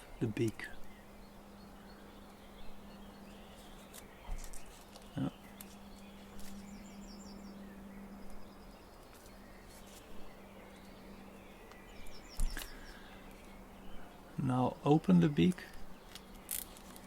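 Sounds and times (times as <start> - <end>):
steady low hum: 0.0 - 17.0
paper rustling and crinkling: 3.6 - 6.6.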